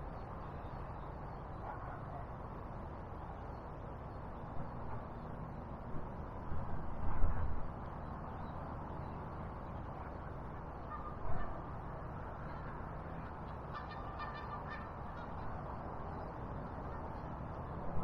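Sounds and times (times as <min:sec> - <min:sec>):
geese honking: 0:13.7 - 0:15.5.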